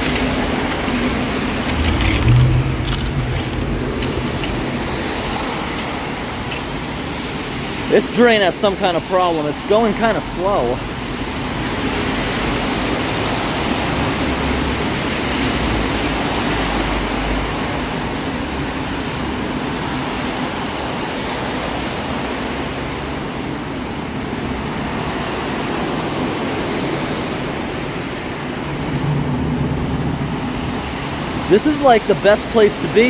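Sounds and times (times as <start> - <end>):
heavy rain pouring down: 0.0 - 33.0
low rumble: 0.2 - 6.1.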